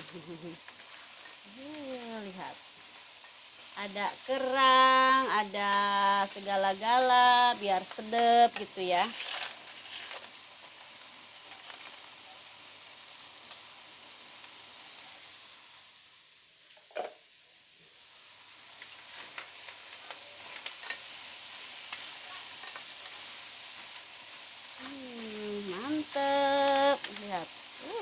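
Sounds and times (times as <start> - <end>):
noodles sizzling in a pan: 0.0 - 28.0
spatula scraping a pan: 9.0 - 10.4.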